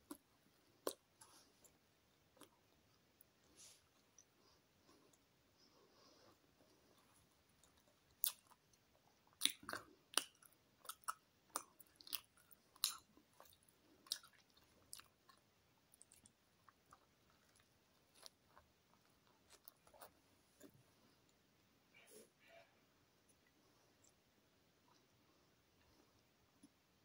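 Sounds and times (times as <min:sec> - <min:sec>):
person chewing crunchy food: 0:00.0 - 0:03.0, 0:06.7 - 0:20.7.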